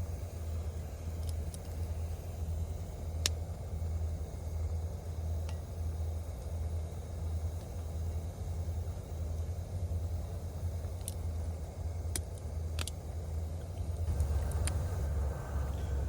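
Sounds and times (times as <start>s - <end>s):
steady low rumble: 0.0s - 16.0s
sharp clicks: 12.1s - 13.0s, 13.7s - 15.0s.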